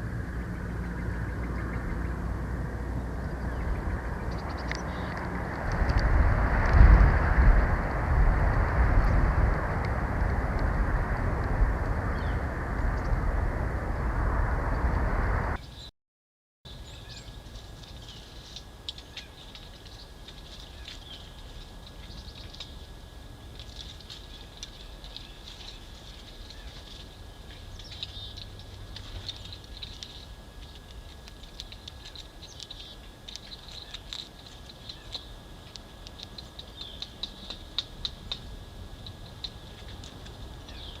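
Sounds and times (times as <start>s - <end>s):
small birds chirping: 0.0s - 5.6s, 12.1s - 13.2s, 16.7s - 41.0s
loud low rushing noise: 5.2s - 15.6s.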